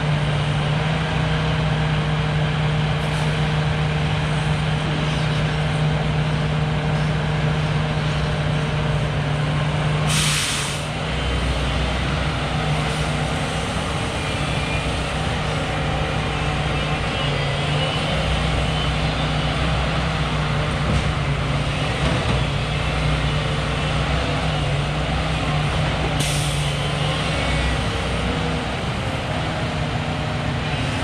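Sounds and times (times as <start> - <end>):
diesel truck engine running: 0.0 - 31.0
air brake hiss: 10.1 - 10.9, 26.2 - 26.8.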